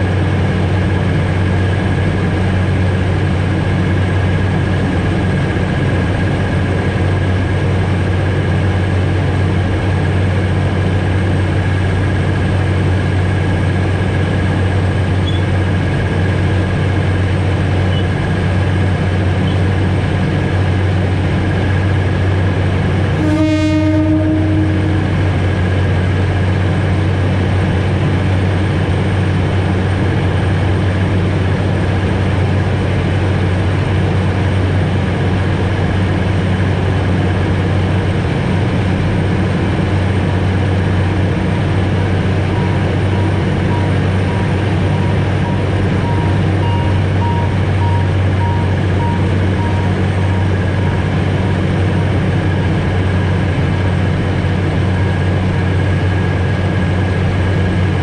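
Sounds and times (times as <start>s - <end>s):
train running hum with rail noise: 0.0s - 58.0s
train horn blast: 23.1s - 25.6s.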